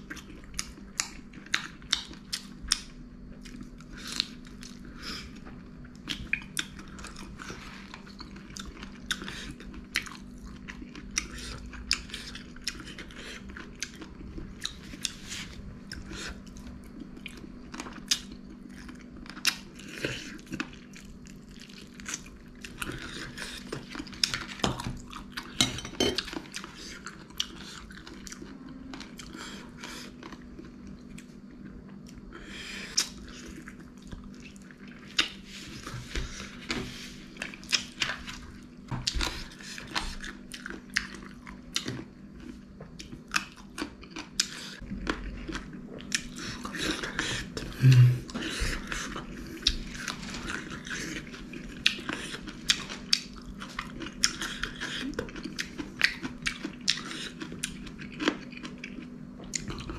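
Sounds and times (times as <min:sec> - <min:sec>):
wet chewing and mouth clicks: 0:37.4 - 0:59.9.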